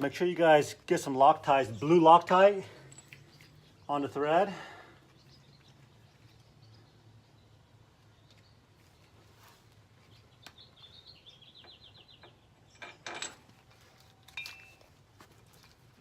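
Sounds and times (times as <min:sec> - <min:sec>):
birds chirping: 0:01.5 - 0:13.2
metal bolts clinking: 0:12.1 - 0:13.7.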